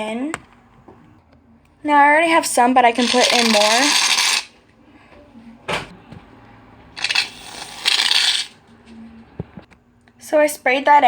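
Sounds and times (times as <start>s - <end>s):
aerosol can hissing: 3.0s - 4.5s, 7.0s - 8.5s.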